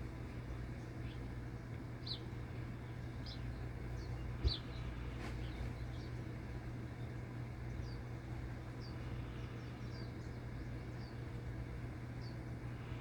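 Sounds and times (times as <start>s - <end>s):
small bird chirping: 4.0s - 4.7s.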